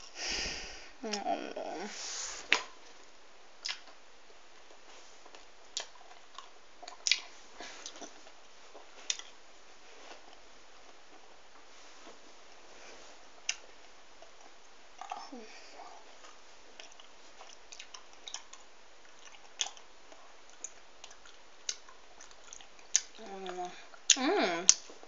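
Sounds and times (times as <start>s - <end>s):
faint hiss: 0.0s - 3.1s
person chewing: 3.6s - 4.0s, 4.6s - 9.4s, 13.4s - 15.3s, 16.2s - 24.9s.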